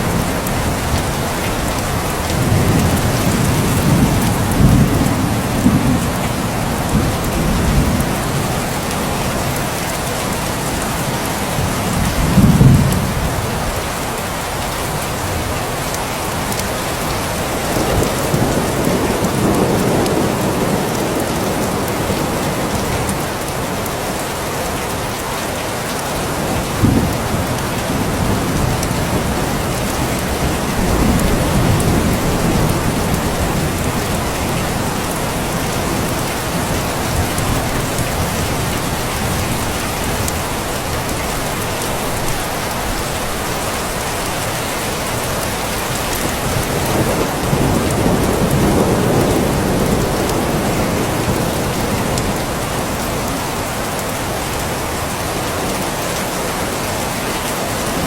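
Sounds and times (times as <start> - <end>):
low rumbles of thunder: 0.0 - 9.6, 26.4 - 41.4, 45.4 - 53.3
heavy rain falling: 0.0 - 58.0.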